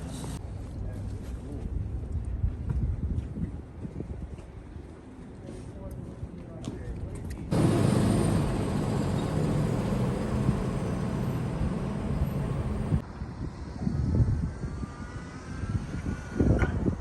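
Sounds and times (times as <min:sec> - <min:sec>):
vehicle rumble: 0:07.5 - 0:13.0.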